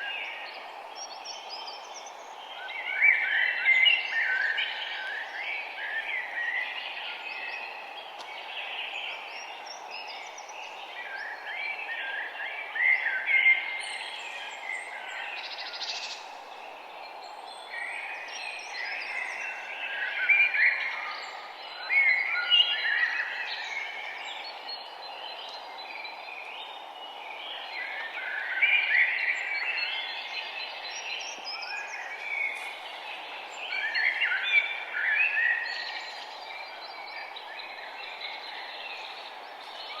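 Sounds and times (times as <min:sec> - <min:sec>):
songbirds chirping and singing: 0:00.0 - 0:40.0
steady background hiss: 0:00.0 - 0:40.0.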